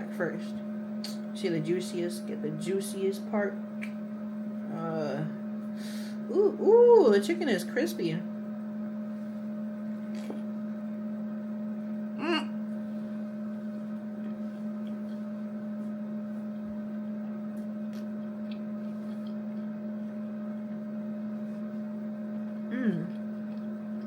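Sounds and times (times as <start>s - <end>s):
steady hum: 0.0s - 24.0s
person humming mm: 12.2s - 12.6s, 22.7s - 23.2s
person chewing crispy food: 13.7s - 24.0s.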